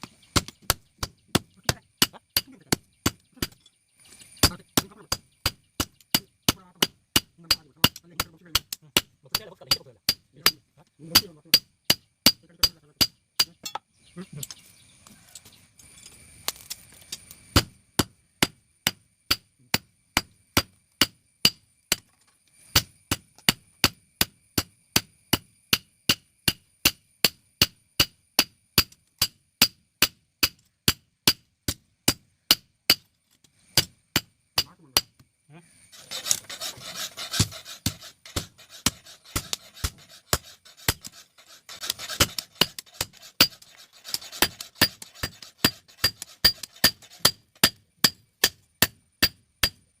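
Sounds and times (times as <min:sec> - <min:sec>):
rough rasping scraping: 0:35.8 - 0:48.6.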